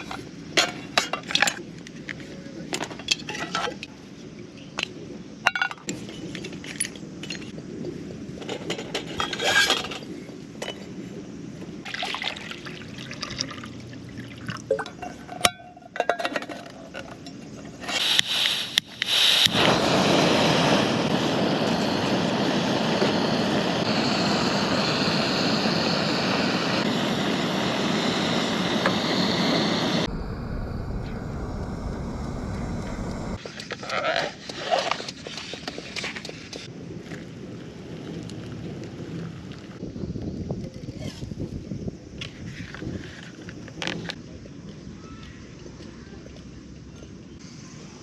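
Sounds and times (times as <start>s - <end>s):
cookware and utensils clinking: 14.7s - 17.3s.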